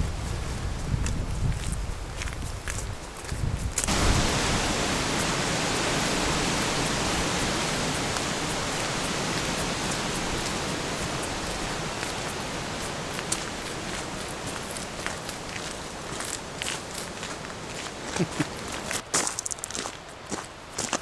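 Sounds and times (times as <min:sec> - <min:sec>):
hiss of falling water: 0:03.8 - 0:19.0.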